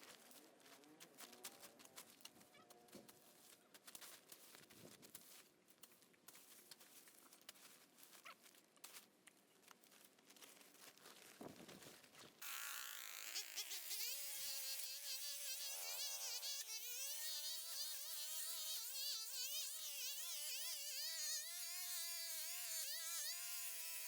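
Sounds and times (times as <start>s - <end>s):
brushcutter buzzing: 12.4s - 24.0s.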